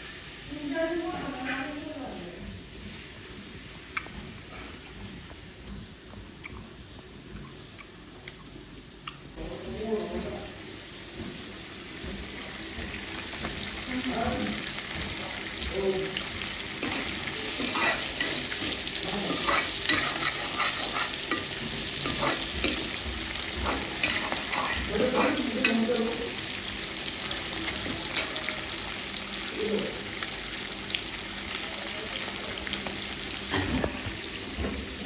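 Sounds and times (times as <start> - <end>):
eating and utensil clicks: 6.4 - 6.7, 7.3 - 9.3.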